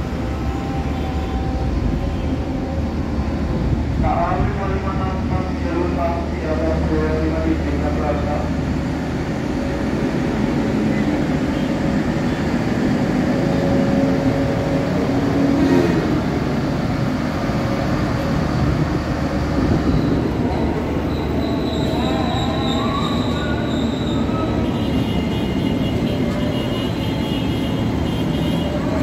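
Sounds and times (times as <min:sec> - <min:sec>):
wheel squeal: 0:21.1 - 0:24.6.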